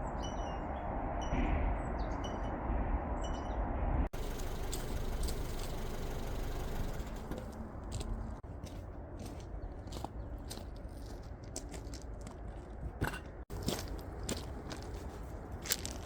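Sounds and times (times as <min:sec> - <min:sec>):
bird chirps: 0:00.0 - 0:03.7
steady outdoor background noise: 0:00.0 - 0:16.0.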